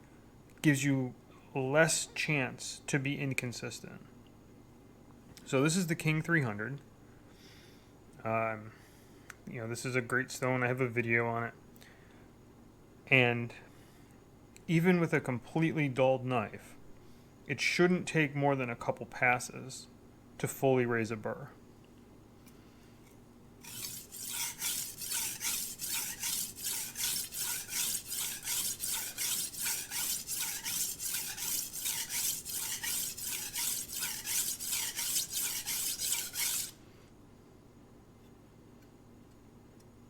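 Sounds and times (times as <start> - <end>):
knife scraping on whetstone: 23.6 - 36.8.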